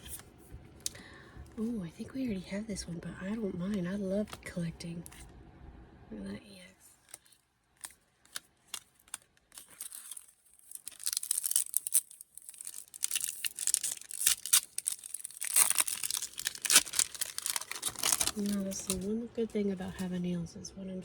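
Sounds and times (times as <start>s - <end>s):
plastic wrapper crinkling and tearing: 6.9s - 19.1s.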